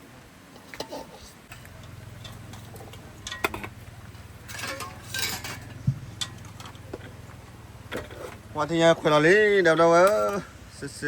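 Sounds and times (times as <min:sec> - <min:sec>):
dishes and utensils clinking: 0:00.6 - 0:03.8, 0:04.4 - 0:07.2.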